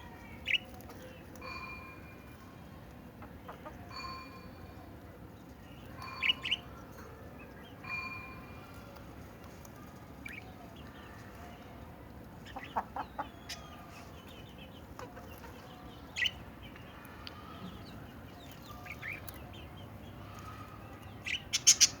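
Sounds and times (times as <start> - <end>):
parrots squawking and chirping: 21.2 - 22.0.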